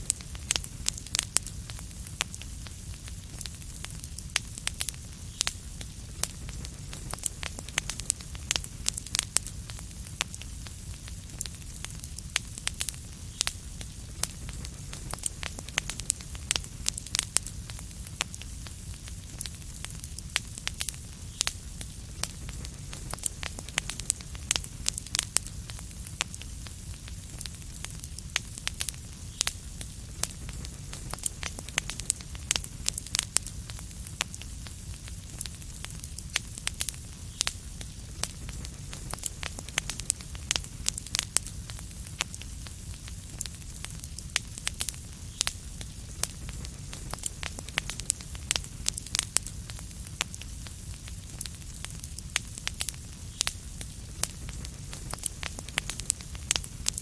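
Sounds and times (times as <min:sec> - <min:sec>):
low rumble and soft hiss: 0:00.0 - 0:57.0
wood fire crackling and popping: 0:00.0 - 0:57.0.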